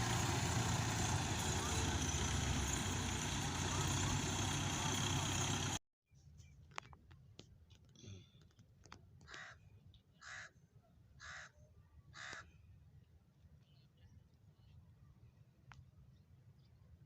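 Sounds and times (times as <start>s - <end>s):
loud engine noise: 0.0s - 5.8s.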